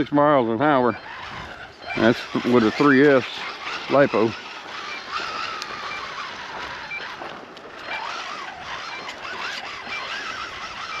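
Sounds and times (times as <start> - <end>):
electric motor whining: 0.0 - 11.0
short high beeps: 0.7 - 9.2
wind noise: 0.9 - 11.0.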